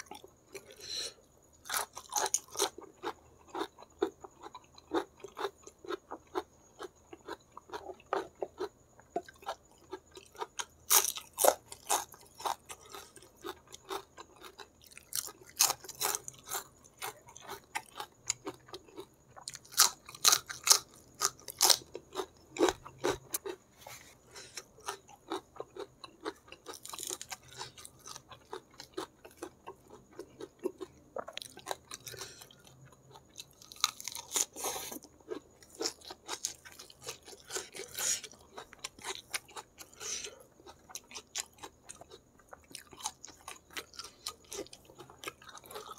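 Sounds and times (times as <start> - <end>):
close chewing: 1.6 - 45.9.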